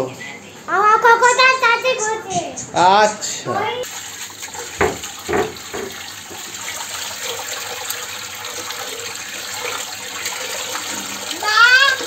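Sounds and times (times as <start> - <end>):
running water hiss: 3.8 - 12.0.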